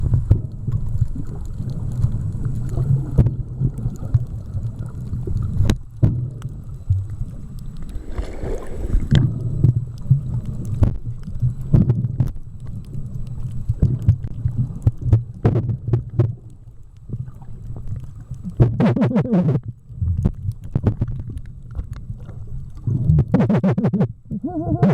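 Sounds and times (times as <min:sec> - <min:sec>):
muffled underwater rumble: 0:00.0 - 0:24.9
bubbly hiss: 0:07.4 - 0:09.8.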